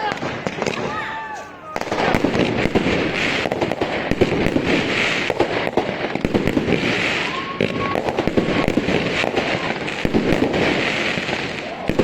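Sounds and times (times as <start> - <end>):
fireworks bangs and crackles: 0.0 - 12.0
fireworks hiss: 1.8 - 12.0.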